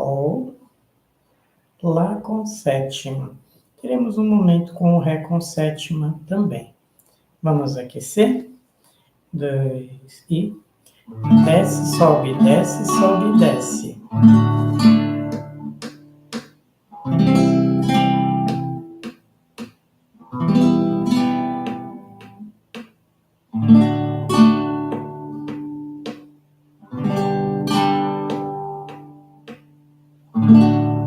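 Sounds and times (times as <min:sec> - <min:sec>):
acoustic guitar strummed: 0:11.1 - 0:31.0.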